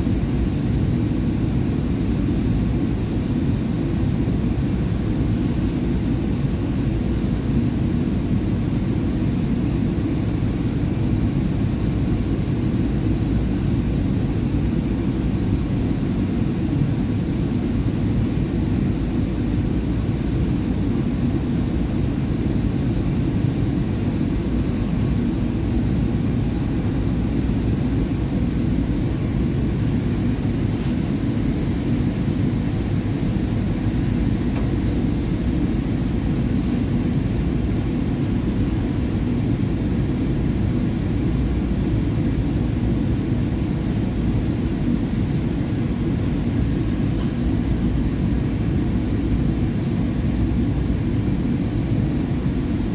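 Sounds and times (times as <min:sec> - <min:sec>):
subway train wheels rumbling: 0:23.8 - 0:42.0.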